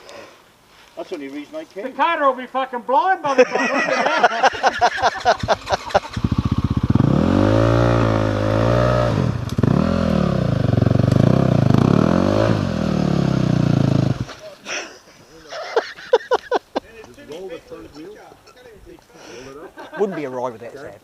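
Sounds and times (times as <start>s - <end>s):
dirt bike engine revving: 4.6s - 14.4s.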